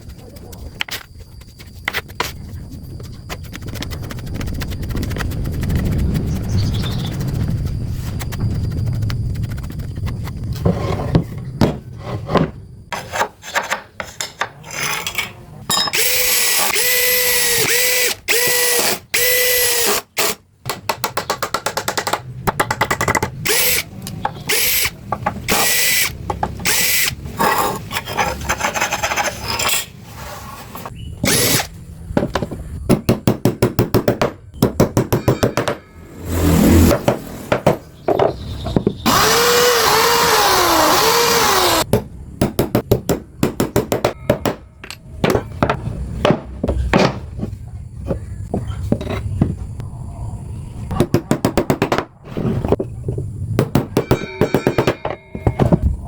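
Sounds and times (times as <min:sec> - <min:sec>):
power tool motor whining: 0:16.0 - 0:20.4, 0:24.5 - 0:24.9, 0:25.5 - 0:27.2, 0:39.1 - 0:41.8.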